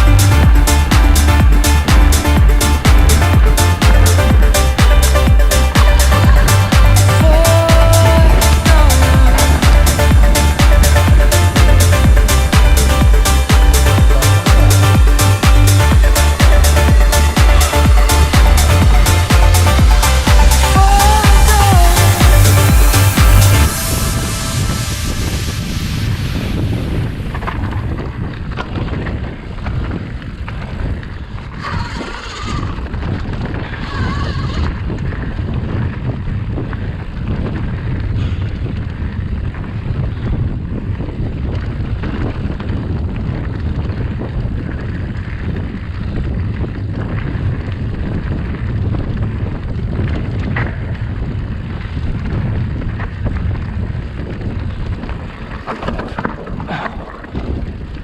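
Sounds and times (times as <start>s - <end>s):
wind on microphone: 0.0s - 58.0s
brief high-pitched sounds: 19.8s - 25.9s
mountain bike rattling on trail: 26.8s - 58.0s.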